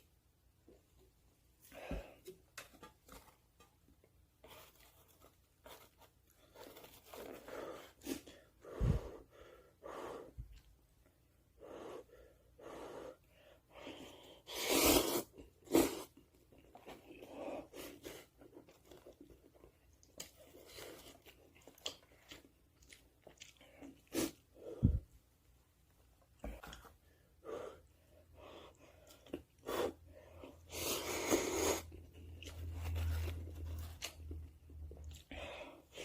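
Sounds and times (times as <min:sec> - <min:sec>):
person slurping noodles: 0:14.5 - 0:16.2, 0:30.6 - 0:31.9.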